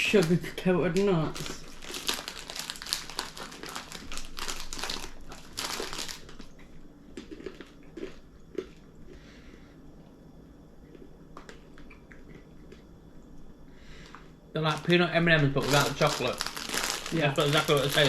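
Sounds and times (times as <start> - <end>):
plastic packet crinkling: 0.0 - 6.6, 14.0 - 18.0
crunching: 0.0 - 9.3, 14.0 - 18.0.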